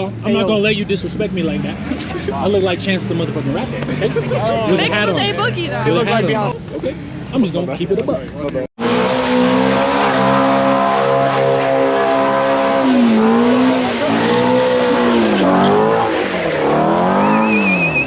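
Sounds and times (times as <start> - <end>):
engine revving: 8.8 - 18.0
tyres squealing: 9.3 - 18.0
high wavering whistle: 17.1 - 18.0.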